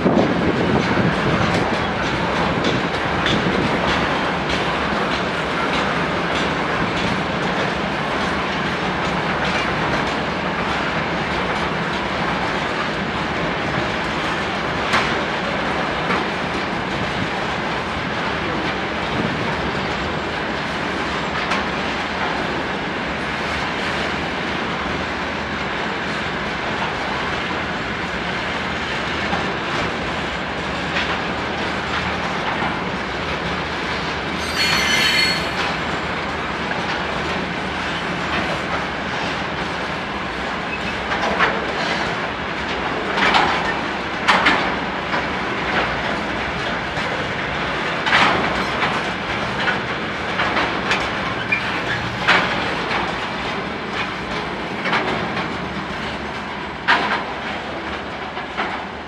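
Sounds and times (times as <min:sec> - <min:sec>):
wheels clanking over rail joints: 0:00.0 - 0:12.2, 0:40.7 - 0:59.0
train wheels rumbling on rail: 0:00.0 - 0:59.0
high wheel squeal: 0:34.4 - 0:35.9.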